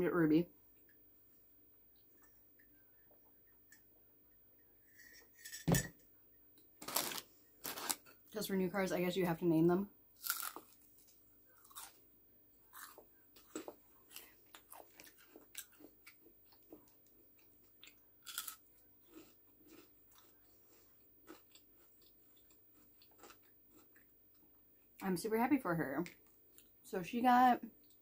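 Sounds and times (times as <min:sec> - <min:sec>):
crunchy chewing: 0:06.8 - 0:08.2, 0:10.2 - 0:12.0, 0:12.6 - 0:24.9.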